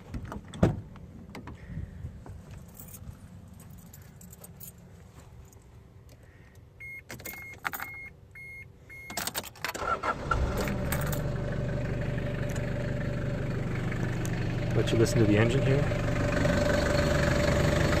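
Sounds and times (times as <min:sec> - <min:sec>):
keys jangling: 0:02.6 - 0:04.9, 0:07.1 - 0:08.0
short warning beeps: 0:06.8 - 0:09.2
diesel engine idling: 0:10.3 - 0:18.0.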